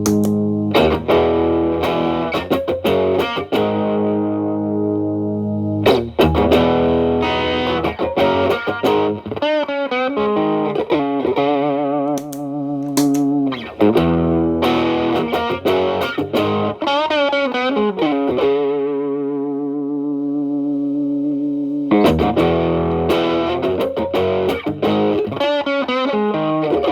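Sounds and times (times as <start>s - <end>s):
bent guitar notes with vibrato: 0.0s - 1.3s
overdriven electric guitar chords: 0.0s - 8.5s.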